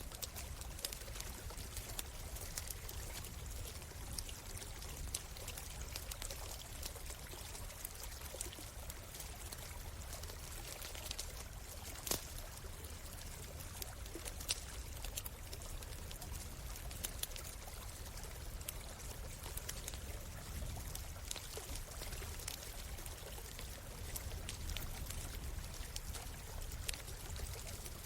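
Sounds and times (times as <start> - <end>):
campfire crackling and popping: 0.0 - 28.0
flowing stream: 0.0 - 28.0.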